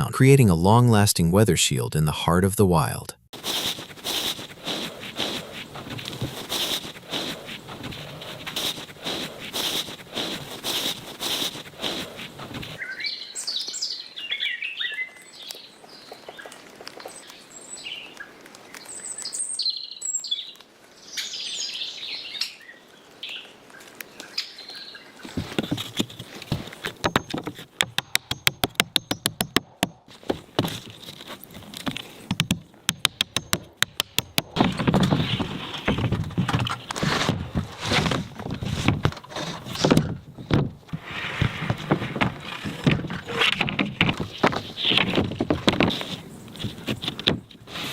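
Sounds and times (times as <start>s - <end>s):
scraping: 3.4s - 12.8s, 25.3s - 47.9s
rapid knocks on roof: 25.3s - 30.8s
irregular knocking: 25.4s - 30.8s, 31.8s - 37.4s.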